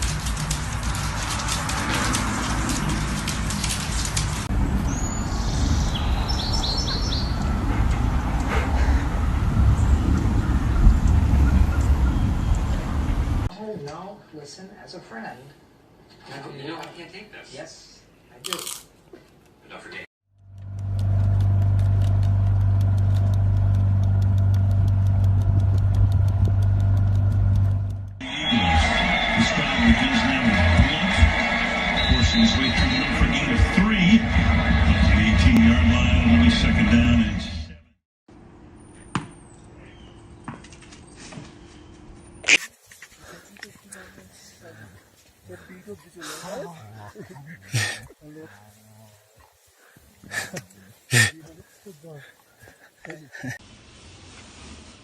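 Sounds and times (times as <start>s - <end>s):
crackling hiss with clicks: 0.0s - 4.5s, 42.6s - 46.3s, 48.0s - 53.5s
bird chirping: 4.6s - 7.6s, 39.0s - 42.6s
fast even ticking: 20.4s - 28.2s
low steady rumble: 20.4s - 28.2s.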